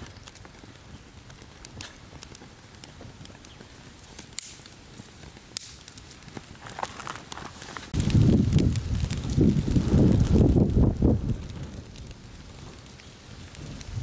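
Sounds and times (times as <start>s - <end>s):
campfire crackling and popping: 0.0s - 14.0s
faint fire hiss: 0.0s - 14.0s.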